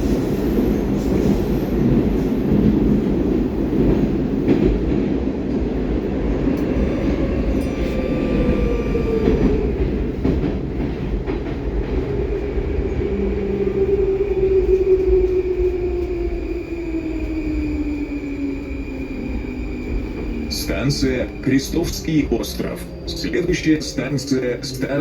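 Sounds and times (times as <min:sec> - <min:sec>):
train wheels rumbling on rails: 0:00.0 - 0:25.0
train motor whine: 0:06.5 - 0:10.4.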